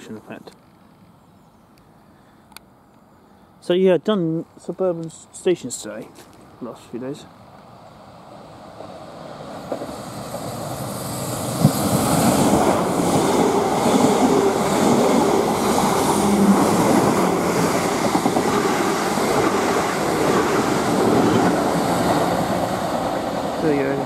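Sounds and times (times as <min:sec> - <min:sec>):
train wheels rushing on rail: 0:07.5 - 0:24.0.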